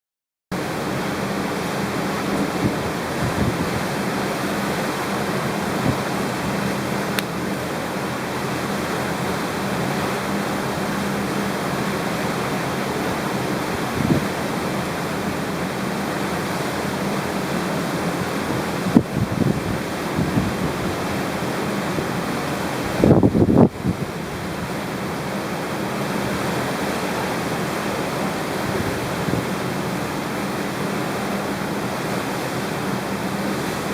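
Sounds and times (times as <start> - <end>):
low wind buffets: 0.6 - 33.9
wind rushing across microphone: 2.1 - 7.2, 13.7 - 14.6, 18.2 - 21.3, 22.8 - 24.6, 28.5 - 30.3.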